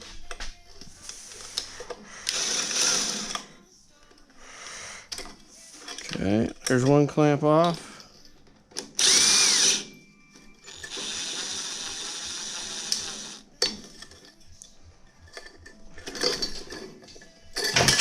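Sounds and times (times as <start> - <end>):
power drill running: 2.2 - 3.4, 9.0 - 9.9, 10.7 - 13.4.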